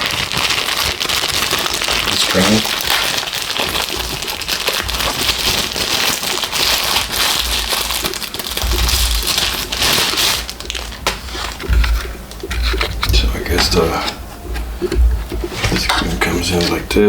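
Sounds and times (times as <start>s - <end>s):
plastic packaging crinkling: 0.0s - 16.9s
dull handling bumps: 10.6s - 16.4s.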